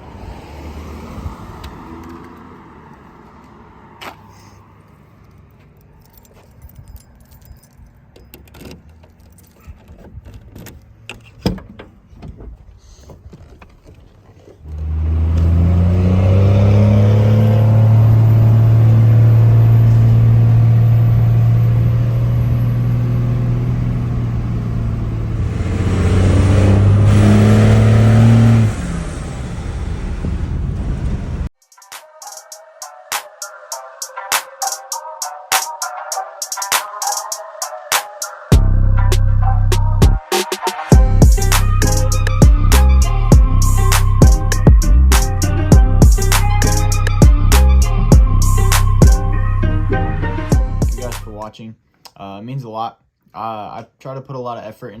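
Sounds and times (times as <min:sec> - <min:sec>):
keys jingling: 0:04.9 - 0:11.4.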